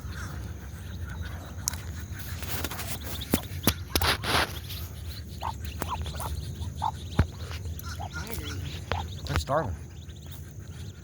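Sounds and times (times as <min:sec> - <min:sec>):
ducks calling softly: 0:00.0 - 0:11.0
rustle: 0:00.2 - 0:06.4.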